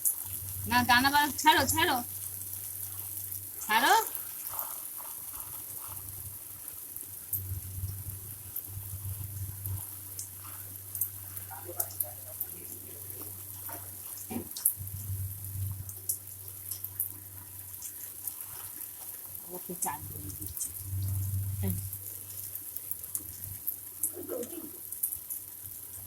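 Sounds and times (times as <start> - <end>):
low steady hum: 0.0 - 4.7, 5.3 - 26.0
water splashing and dripping: 0.0 - 26.0.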